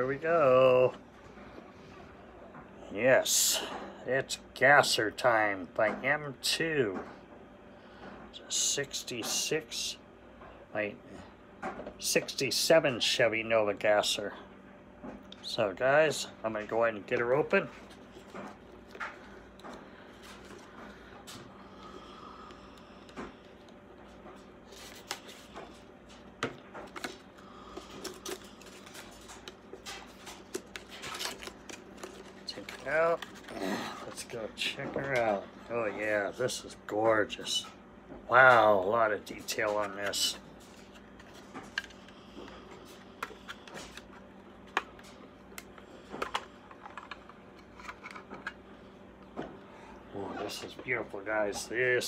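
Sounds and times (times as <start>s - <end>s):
plastic packaging rustling: 24.6s - 34.3s.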